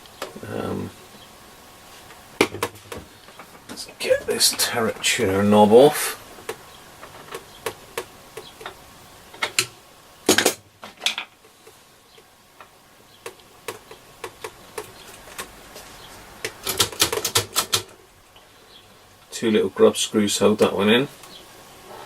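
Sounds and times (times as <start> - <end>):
clicks and taps on radio knob: 12.6 - 15.5.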